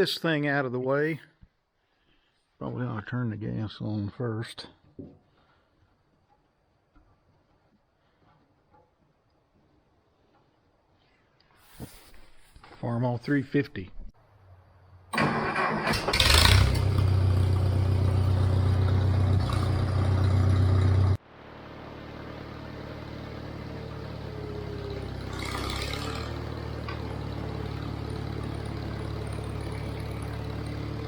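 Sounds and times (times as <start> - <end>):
tractor engine starting and running: 15.1 - 31.0.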